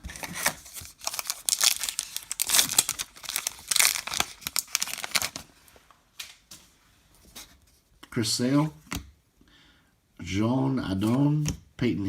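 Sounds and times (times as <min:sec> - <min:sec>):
foil wrapper tearing and crinkling: 0:00.1 - 0:05.5.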